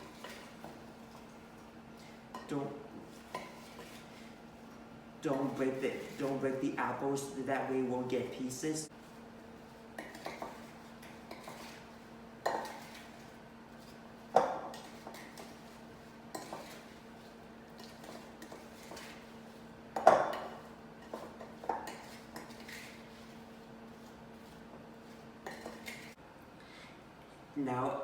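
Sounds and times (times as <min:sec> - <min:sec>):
spoon knocking and scraping bowl: 0:02.3 - 0:04.3, 0:09.9 - 0:17.0, 0:17.7 - 0:19.3, 0:19.9 - 0:23.4, 0:25.4 - 0:26.2.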